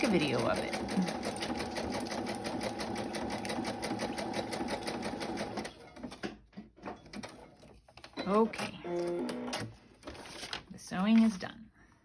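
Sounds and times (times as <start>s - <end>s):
sewing machine stitching: 0.0s - 5.8s.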